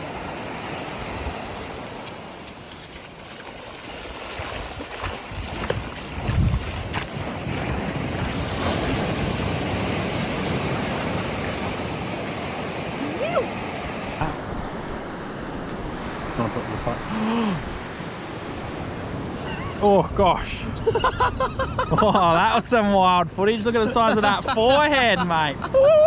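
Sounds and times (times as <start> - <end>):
surf washing onto beach: 0.0 - 20.8, 21.9 - 26.0
wind buffeting microphone: 4.1 - 16.4.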